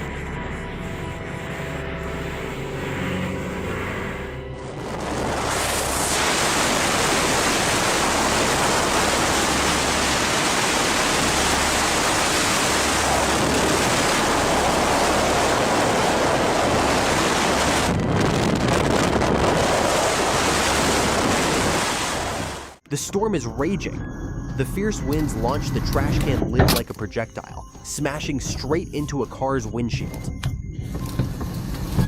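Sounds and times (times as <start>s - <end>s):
wind rushing: 0.0s - 22.8s
driving water: 0.0s - 27.2s
wind buffeting microphone: 3.2s - 22.7s.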